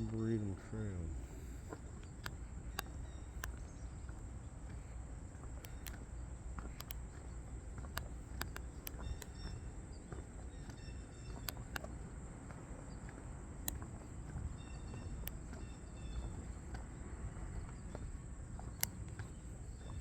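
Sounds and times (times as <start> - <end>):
insects droning: 0.0 - 20.0
sharp clicks: 1.2 - 4.2, 5.5 - 9.6, 10.6 - 12.1, 13.6 - 16.8, 18.6 - 20.0
bird chirps: 1.2 - 4.9, 5.5 - 12.1, 12.9 - 17.0, 17.6 - 20.0.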